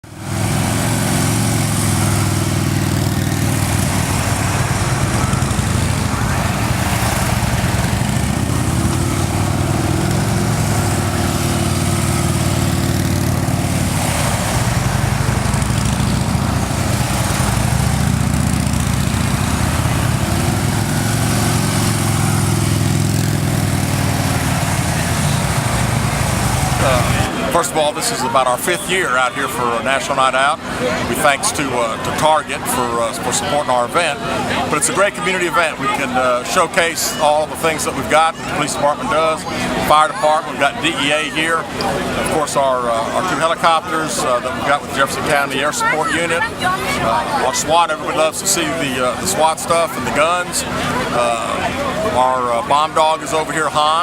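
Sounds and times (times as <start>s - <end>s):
low engine drone: 0.1s - 27.6s.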